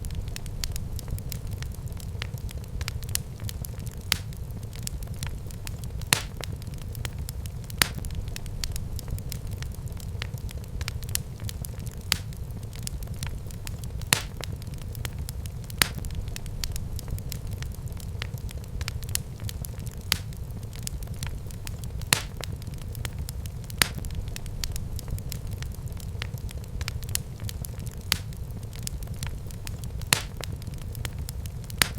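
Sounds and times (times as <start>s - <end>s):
wood fire crackling: 0.0s - 31.9s.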